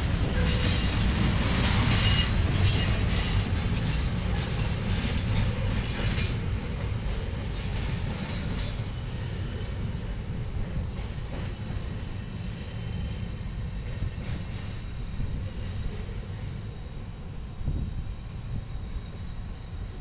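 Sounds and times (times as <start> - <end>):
freight train rolling past: 0.0 - 20.0
high-pitched wheel squeal: 12.0 - 16.0.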